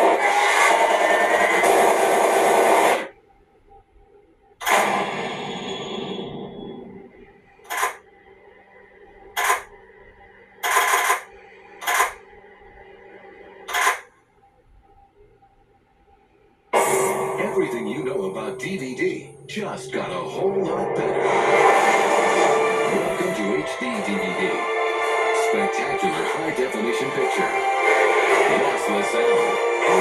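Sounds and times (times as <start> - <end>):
loud dense sound effect: 16.8 - 23.4.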